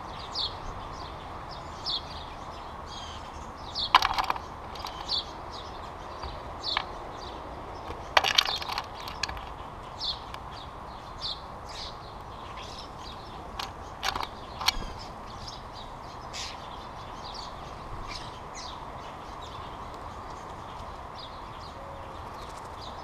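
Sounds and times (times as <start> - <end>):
small birds chirping: 0.0 - 23.0
birds pecking on feeder tray: 3.3 - 11.3, 12.6 - 15.5.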